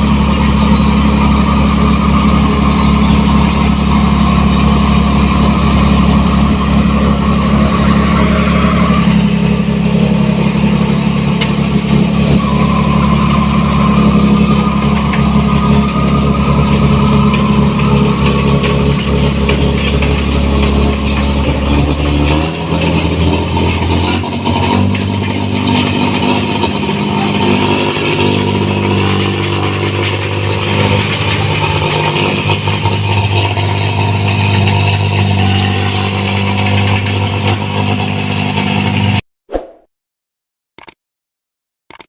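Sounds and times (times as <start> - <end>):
diesel engine running hard: 0.0 - 39.2.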